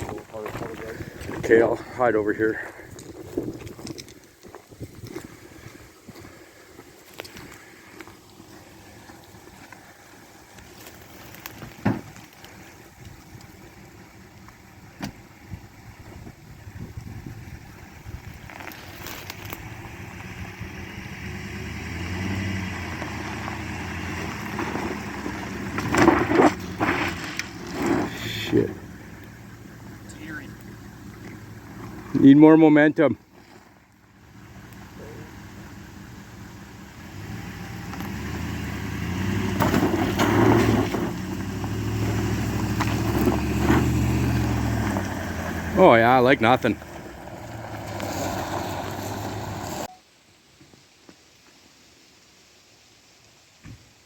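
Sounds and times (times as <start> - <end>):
knocks and clatters on rough ground: 0.0 - 17.3, 18.0 - 20.6, 22.0 - 36.3, 37.2 - 49.9
truck engine under load: 7.1 - 49.9.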